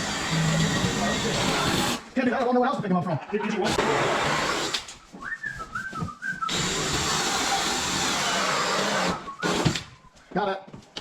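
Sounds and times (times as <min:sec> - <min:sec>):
short whistled notes: 0:05.0 - 0:06.7.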